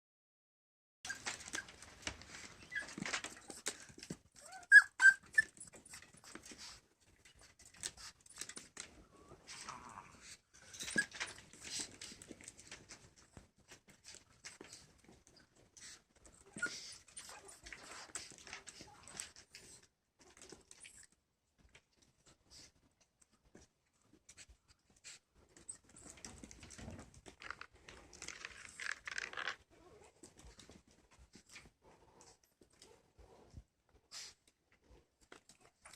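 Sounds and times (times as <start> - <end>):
puppies squeaking: 1.1 - 1.8, 4.4 - 6.4, 10.7 - 11.7
scratchy rustling and clicks: 23.1 - 33.7.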